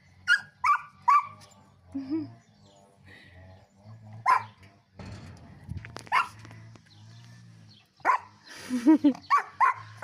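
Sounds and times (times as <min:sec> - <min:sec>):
dog barking: 0:00.3 - 0:01.4, 0:04.2 - 0:04.6, 0:06.1 - 0:06.4, 0:08.0 - 0:08.3, 0:09.3 - 0:10.0.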